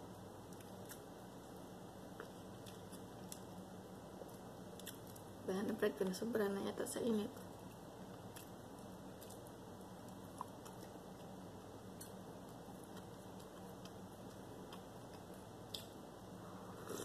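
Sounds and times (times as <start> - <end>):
low steady hum: 0.0 - 17.0
faint chewing: 0.4 - 3.6, 4.2 - 5.3, 7.4 - 11.4, 12.0 - 16.0, 16.7 - 17.0.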